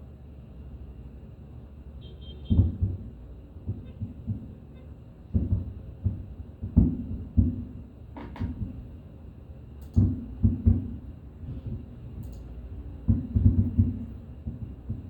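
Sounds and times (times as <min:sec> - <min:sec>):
distant fireworks booming: 0:02.5 - 0:09.0, 0:10.0 - 0:15.0.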